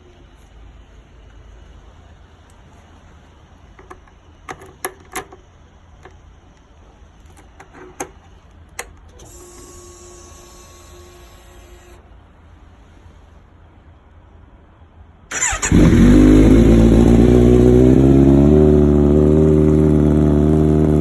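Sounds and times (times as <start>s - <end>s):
fuel pump electric whine: 9.1s - 12.1s.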